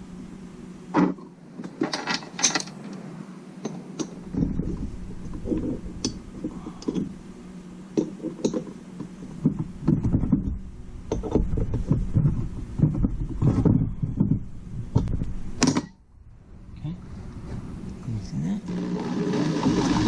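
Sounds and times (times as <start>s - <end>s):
steady low hum: 0.0s - 20.0s
tools knocking and scraping: 1.0s - 3.0s, 3.6s - 7.2s, 8.0s - 15.9s.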